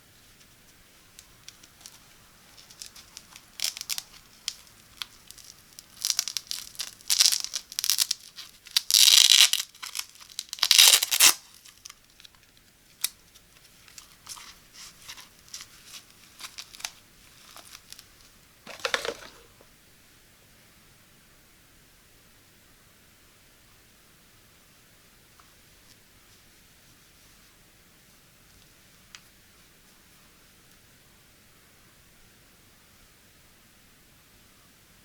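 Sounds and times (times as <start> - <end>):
packaging crinkling: 1.4 - 12.0, 14.3 - 18.1, 18.7 - 19.6
packaging tearing: 2.6 - 12.0, 18.7 - 19.6.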